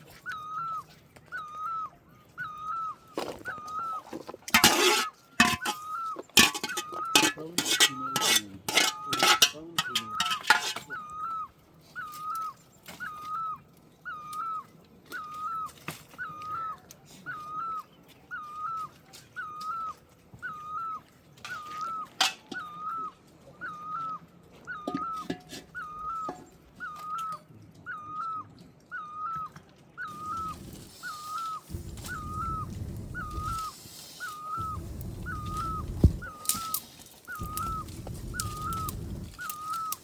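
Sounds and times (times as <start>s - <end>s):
bird whistling call: 0.2s - 40.0s.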